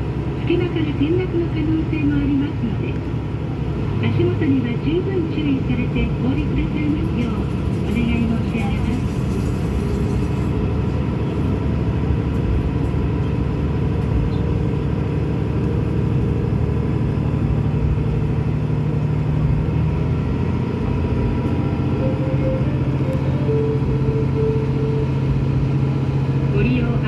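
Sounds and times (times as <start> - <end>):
railcar engine rumble: 0.0 - 27.0
short tones: 21.9 - 26.0.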